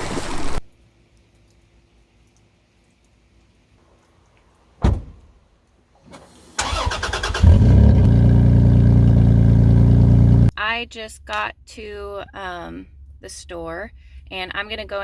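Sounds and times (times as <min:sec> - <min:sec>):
thump: 0:04.8 - 0:05.3
car engine cranking and idling: 0:06.1 - 0:10.5.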